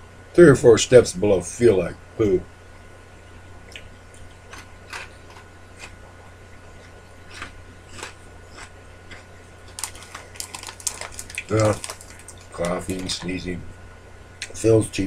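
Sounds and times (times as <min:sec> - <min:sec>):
low hum: 0:00.0 - 0:15.0
cheese puffs crunching: 0:06.8 - 0:13.5.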